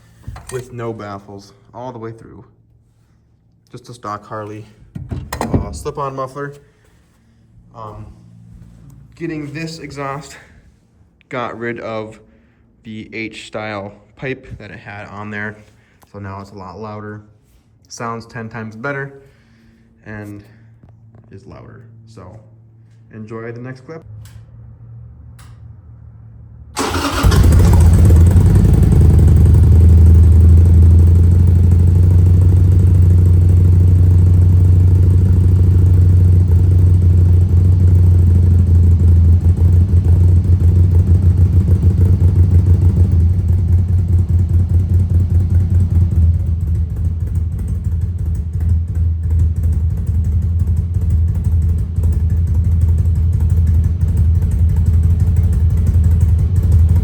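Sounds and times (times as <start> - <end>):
motorcycle engine rumbling: 4.4 - 6.4, 24.1 - 57.0.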